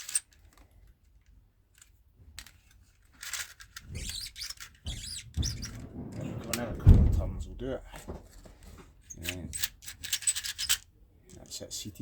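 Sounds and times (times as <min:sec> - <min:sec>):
dull knocks: 0:04.9 - 0:08.4.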